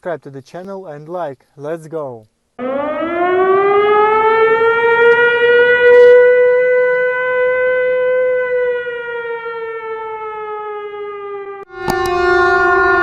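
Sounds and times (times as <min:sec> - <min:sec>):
emergency vehicle siren wail: 0:02.6 - 0:13.0.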